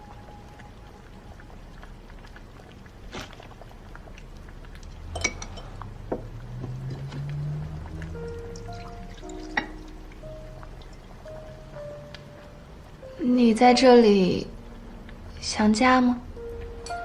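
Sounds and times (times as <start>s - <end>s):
dishes and utensils clinking: 5.1s - 7.2s.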